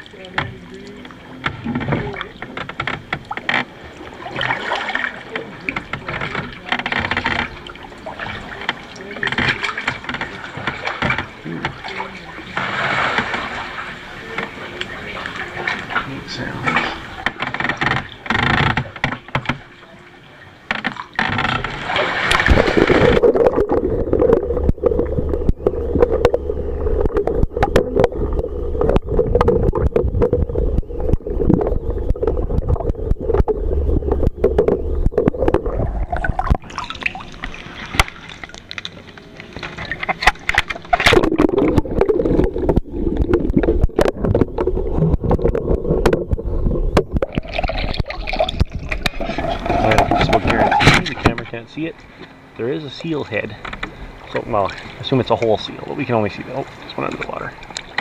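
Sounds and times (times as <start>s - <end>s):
water splashing around kayak: 0.0s - 58.0s
steady low drone: 22.3s - 54.8s.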